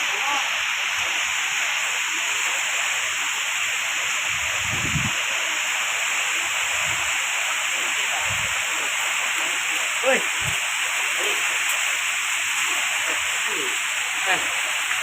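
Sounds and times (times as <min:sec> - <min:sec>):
strong wind blowing: 0:04.3 - 0:05.3, 0:08.2 - 0:08.7, 0:10.3 - 0:10.6
wind buffeting microphone: 0:04.3 - 0:05.3, 0:08.2 - 0:08.7, 0:10.3 - 0:10.7.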